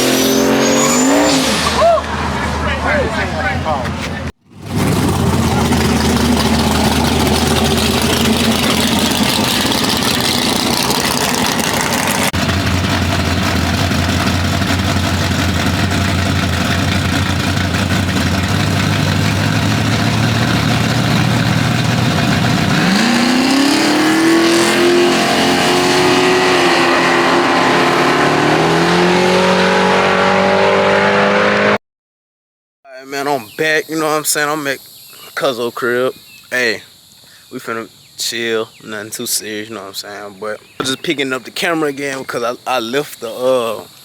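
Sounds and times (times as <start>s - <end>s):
car engine revving and accelerating: 0.0s - 3.6s, 4.5s - 31.8s.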